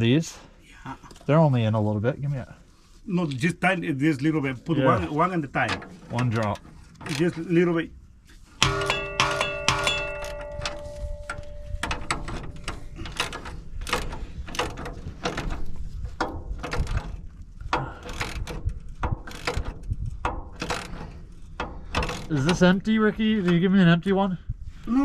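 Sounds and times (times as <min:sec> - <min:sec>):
metal part ringing: 0:08.6 - 0:12.9
ratchet wrench clicking: 0:18.0 - 0:22.3.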